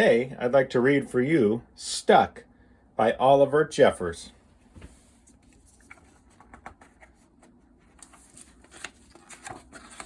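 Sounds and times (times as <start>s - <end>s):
handling rustling and taps: 4.7s - 10.0s.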